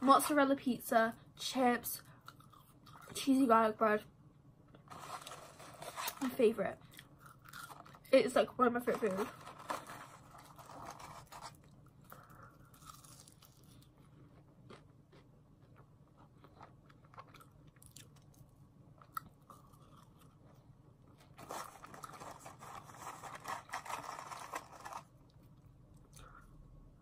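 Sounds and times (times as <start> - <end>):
person chewing fries: 2.2 - 3.2, 6.9 - 8.0, 10.3 - 26.5.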